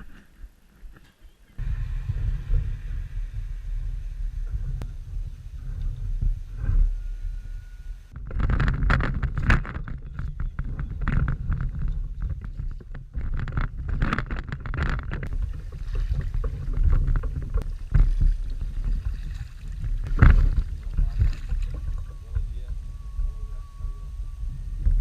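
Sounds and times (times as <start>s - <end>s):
wind buffeting microphone: 1.5s - 25.0s
water splashing: 15.3s - 22.2s.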